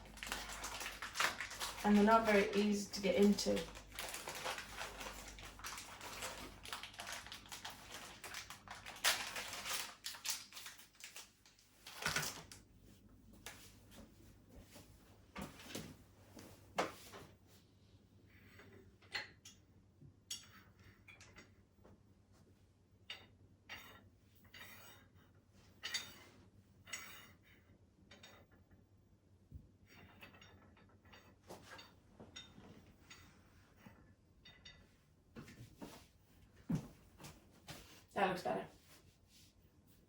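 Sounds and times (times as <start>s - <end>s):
plastic packet crinkling: 0.0s - 12.6s.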